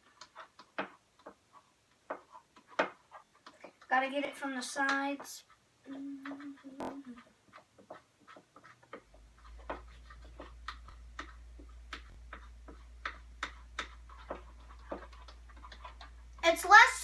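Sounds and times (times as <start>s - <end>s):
slime stirred with sticky clicks: 0.0s - 4.0s, 4.8s - 16.9s
low steady hum: 9.0s - 17.0s.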